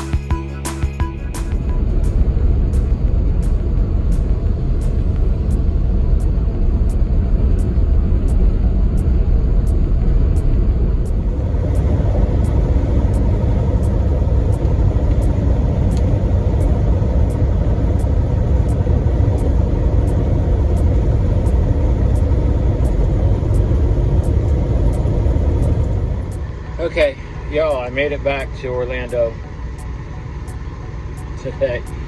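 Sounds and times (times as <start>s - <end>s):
road noise: 0.0s - 32.0s
truck diesel engine rumble: 11.0s - 32.0s.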